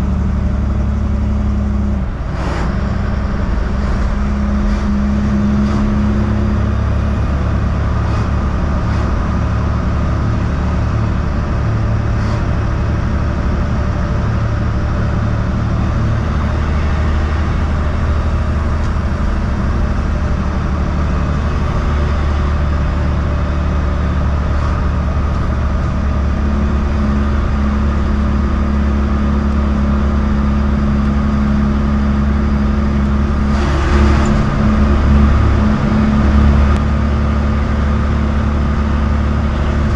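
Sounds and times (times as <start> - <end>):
road noise: 0.0 - 39.9
truck diesel engine running: 0.0 - 39.9.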